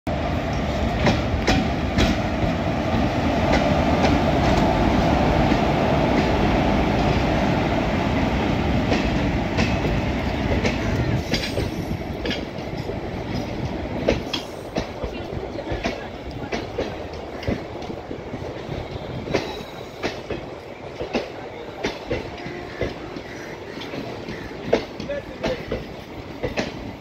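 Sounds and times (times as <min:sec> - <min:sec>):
rumble of wheels on rails: 0:00.1 - 0:27.0
clickety-clack wheel clacks: 0:08.9 - 0:18.0, 0:19.3 - 0:27.0.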